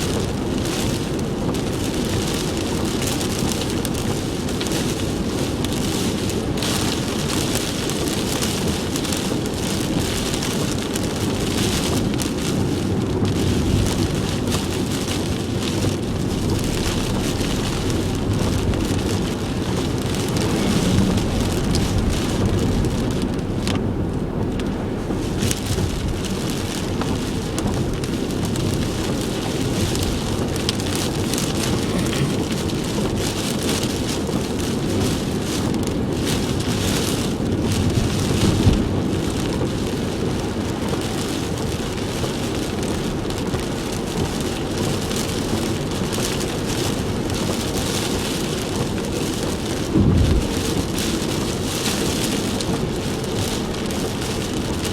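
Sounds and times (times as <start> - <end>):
heavy rain beating on car: 0.0 - 54.9
low road and engine rumble: 0.0 - 54.9.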